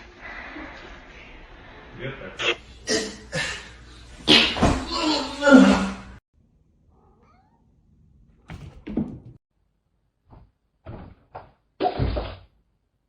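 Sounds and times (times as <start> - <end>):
cat meowing: 7.0 - 7.7.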